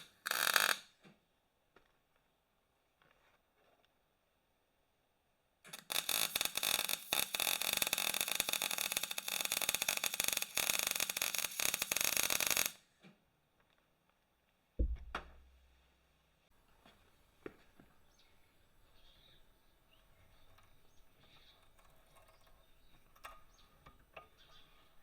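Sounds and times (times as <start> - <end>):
welder crackling: 0.0 - 0.8, 5.7 - 12.8
dull thump with low ring: 14.8 - 15.6.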